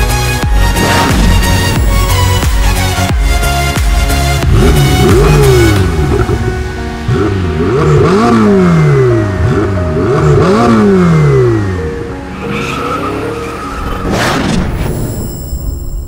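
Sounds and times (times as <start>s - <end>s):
background music: 0.0s - 16.0s
sports car engine revving: 4.0s - 13.4s.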